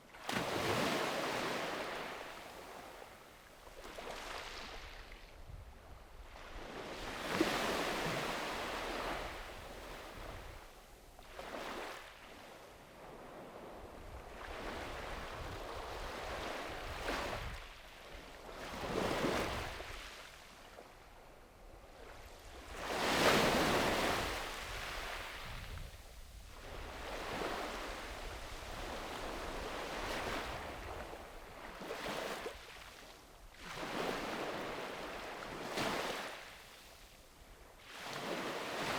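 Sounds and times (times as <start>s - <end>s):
small waves breaking on beach: 0.0s - 38.9s
wind on microphone: 13.5s - 17.7s, 22.4s - 31.3s.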